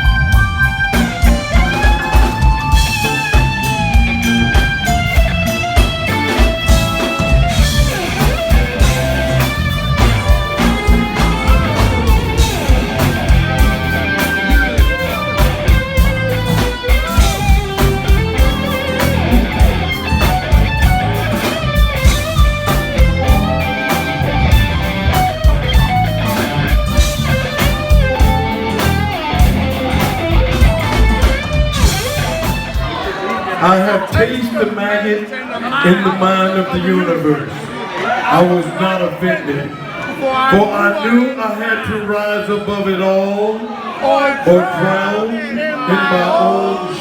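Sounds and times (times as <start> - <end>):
electric guitar: 0.0 - 33.6
live funk band playing: 0.0 - 34.8.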